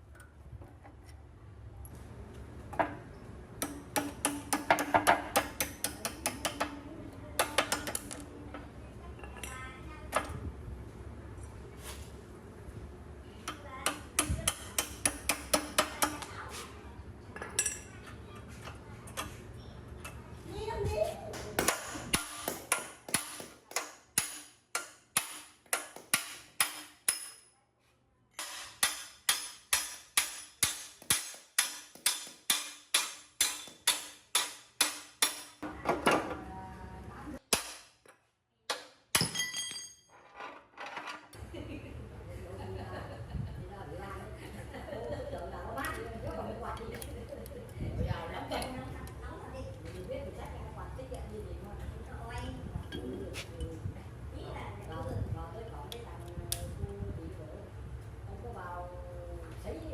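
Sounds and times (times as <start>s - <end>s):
hammer striking metal: 3.6s - 6.7s, 13.8s - 16.3s, 21.3s - 27.5s, 28.4s - 35.6s, 37.5s - 37.9s, 38.7s - 40.0s.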